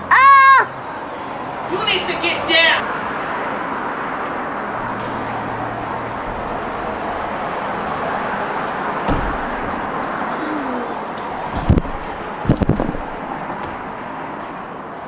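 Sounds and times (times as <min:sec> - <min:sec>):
vehicle road noise: 0:00.0 - 0:15.0
low thump: 0:06.2 - 0:10.1, 0:11.3 - 0:14.6.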